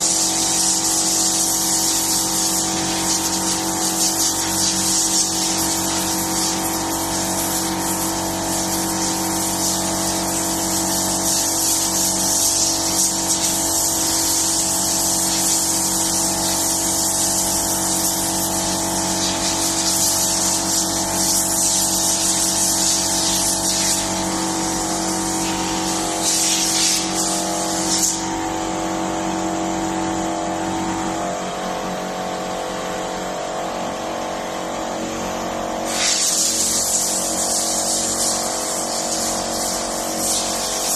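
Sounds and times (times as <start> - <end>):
loud spraying hiss: 0.0 - 28.2, 35.9 - 40.9.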